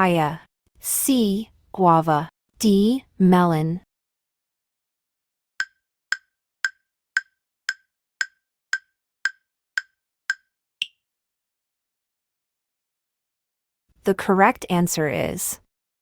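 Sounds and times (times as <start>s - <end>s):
wood block ticks: 5.6s - 11.0s.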